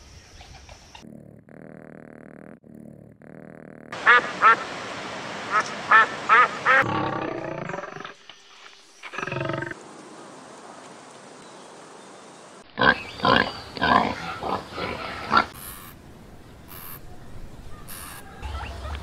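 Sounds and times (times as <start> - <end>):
pig grunting: 1.0 - 4.0, 12.8 - 15.6.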